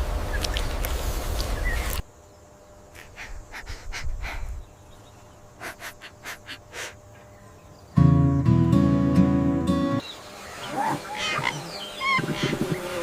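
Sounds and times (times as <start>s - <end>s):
breathy puffs: 3.0s - 4.7s, 5.6s - 7.3s
held low chord: 8.0s - 10.0s.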